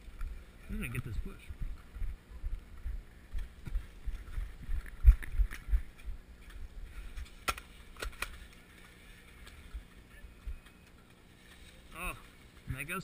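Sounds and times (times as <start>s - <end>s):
low thudding footsteps: 0.0s - 7.4s.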